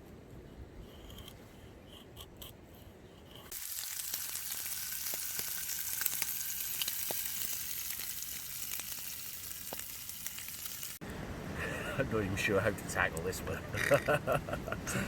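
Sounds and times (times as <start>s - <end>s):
food sizzling in a pan: 3.5s - 11.0s.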